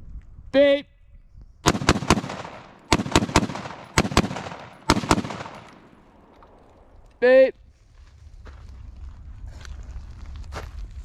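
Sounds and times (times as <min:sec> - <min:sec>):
rifle shots echoing: 0:01.7 - 0:07.1.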